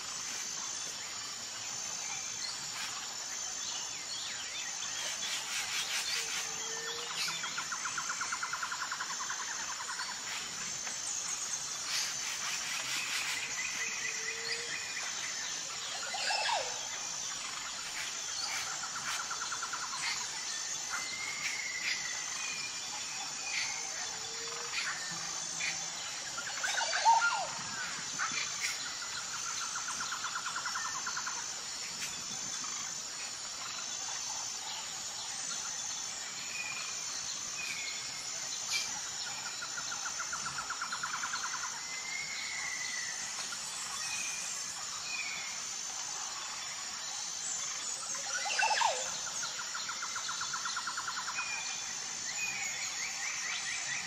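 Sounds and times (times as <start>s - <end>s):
high insect drone: 0.0s - 54.0s
birds chirping and trilling: 4.4s - 47.0s.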